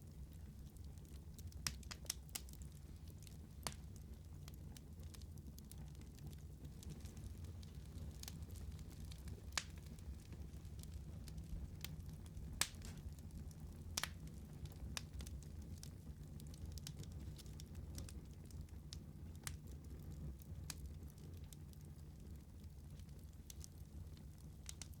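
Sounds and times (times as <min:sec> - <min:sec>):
low rumble of flame: 0:00.0 - 0:25.0
wood fire crackling and popping: 0:00.0 - 0:25.0.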